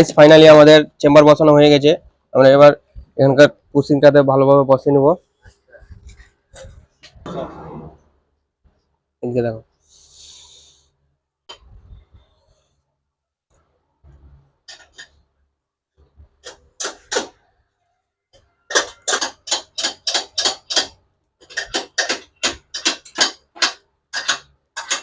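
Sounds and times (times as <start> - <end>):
hand tool clicking: 18.7 - 25.0.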